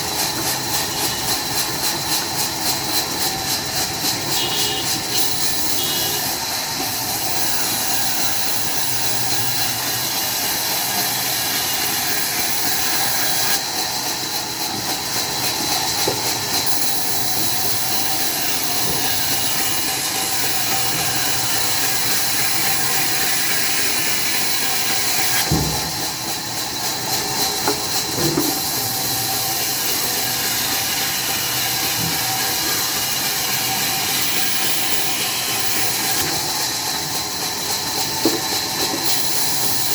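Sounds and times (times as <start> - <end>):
sawmill machinery hissing: 0.0 - 39.9
knock: 25.4 - 25.9.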